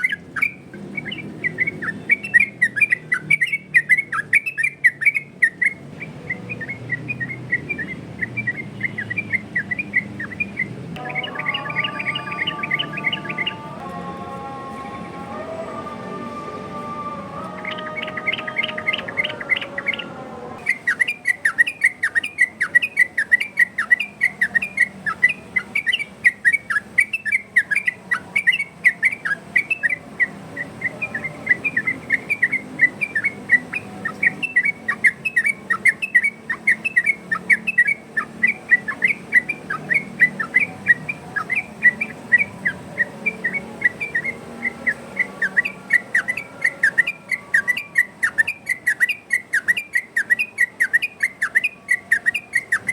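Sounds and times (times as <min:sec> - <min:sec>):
bird singing whistled notes: 0:00.0 - 0:13.8, 0:17.5 - 0:52.9.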